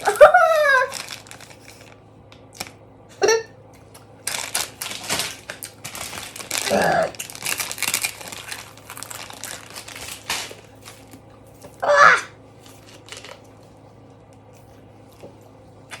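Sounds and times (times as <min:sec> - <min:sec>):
crinkling and rustling: 0:00.8 - 0:02.0, 0:04.2 - 0:11.8, 0:12.6 - 0:13.8.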